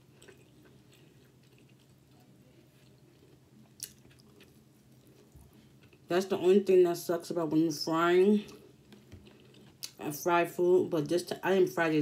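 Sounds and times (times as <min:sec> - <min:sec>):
quiet chewing: 0:00.0 - 0:06.1, 0:08.4 - 0:10.0.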